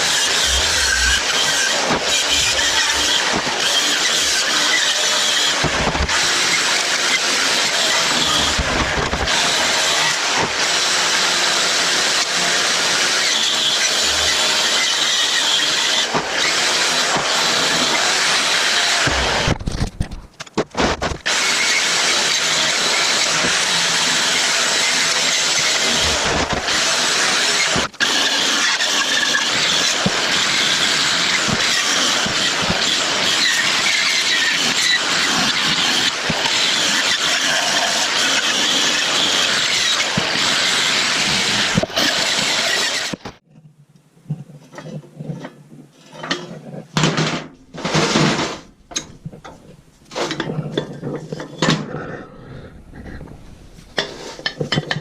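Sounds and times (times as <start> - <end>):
power tool grinding metal: 0.0 - 19.7, 20.9 - 43.4.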